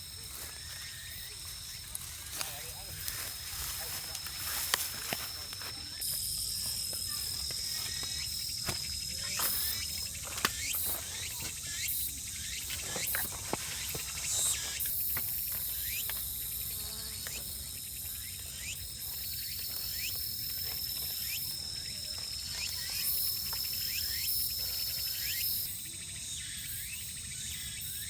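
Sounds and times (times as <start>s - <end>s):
insects chirring in a high trill: 0.0s - 28.0s.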